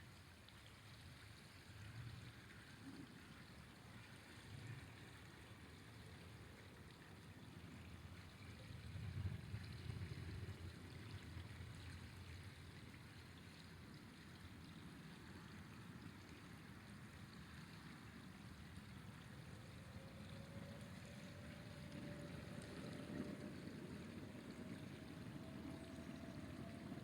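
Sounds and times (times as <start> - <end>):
river flowing: 0.0 - 27.0.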